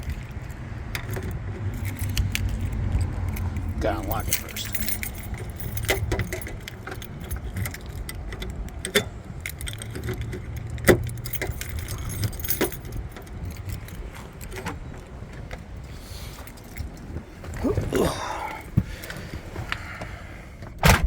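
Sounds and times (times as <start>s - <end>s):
car keys jangling: 0.0s - 20.2s.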